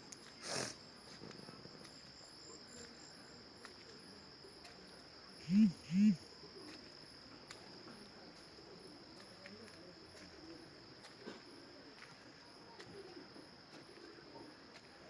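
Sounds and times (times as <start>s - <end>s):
soft insect chirp: 0.0s - 15.0s
insect trill: 1.8s - 7.3s.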